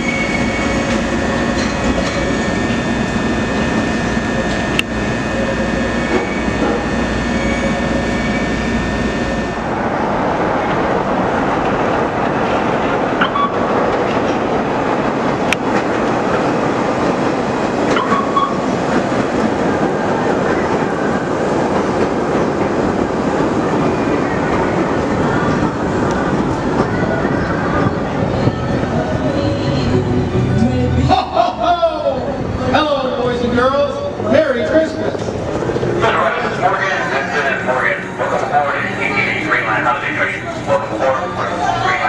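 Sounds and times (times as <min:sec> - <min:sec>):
wheel squeals: 0:00.0 - 0:09.6, 0:17.9 - 0:18.7
electric train humming: 0:00.0 - 0:42.0
train rumbling: 0:00.0 - 0:42.0.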